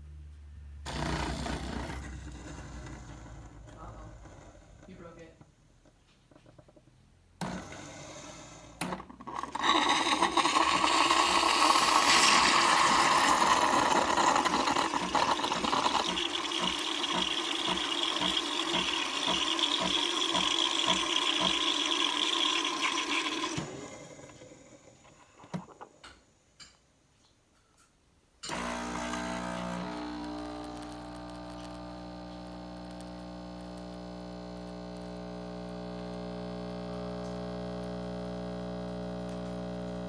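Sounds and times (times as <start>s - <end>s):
espresso machine pump humming and hissing: 0.9s - 5.3s, 7.4s - 25.9s, 28.4s - 40.0s
espresso machine clicks: 8.8s - 21.9s.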